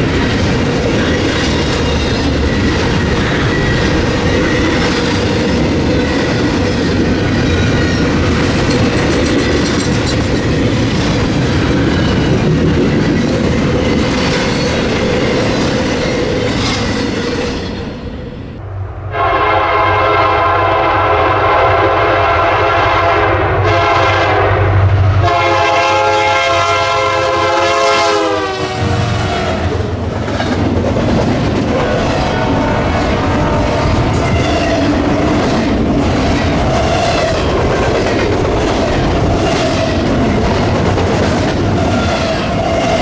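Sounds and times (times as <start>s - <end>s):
train wheels on rails: 0.0s - 18.6s, 23.6s - 43.0s
locomotive air horn: 19.0s - 29.9s, 32.0s - 34.8s.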